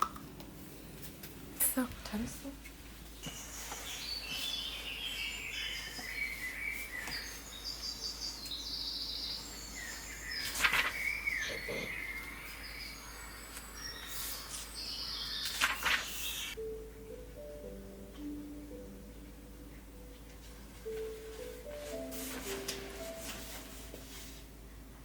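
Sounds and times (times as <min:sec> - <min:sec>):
birds chirping: 0:03.1 - 0:16.6
music: 0:16.6 - 0:24.5.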